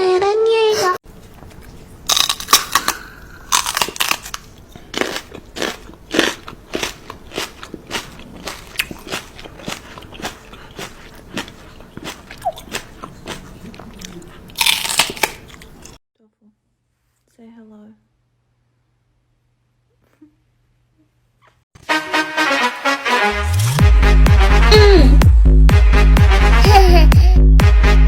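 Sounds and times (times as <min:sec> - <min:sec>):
crunchy chewing: 0:01.1 - 0:16.0.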